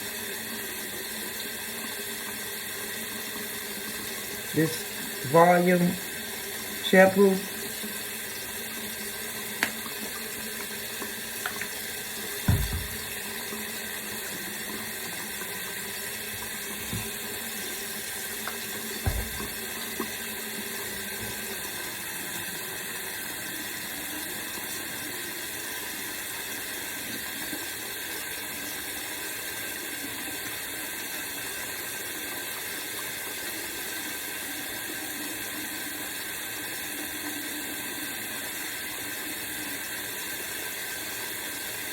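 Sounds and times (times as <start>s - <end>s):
water running from sink tap: 0.0s - 41.9s
knocks and bumps: 12.5s - 13.2s, 19.0s - 19.6s.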